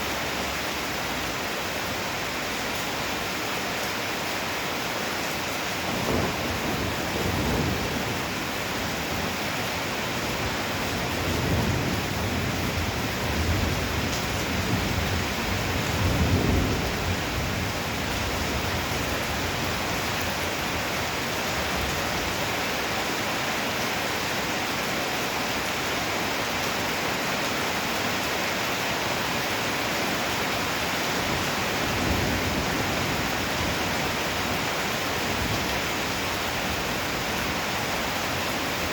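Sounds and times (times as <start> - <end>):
thunder rumbling: 5.9 - 20.9, 31.1 - 37.6.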